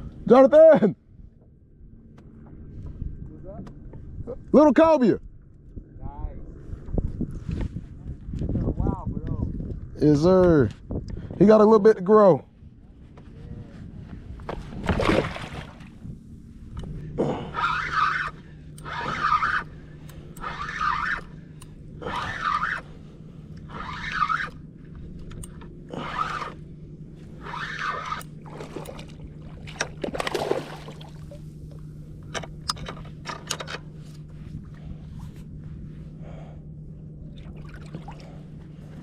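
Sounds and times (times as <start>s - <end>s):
steady low hum: 0.0s - 39.0s
paddle strokes swishing through water: 23.6s - 24.5s.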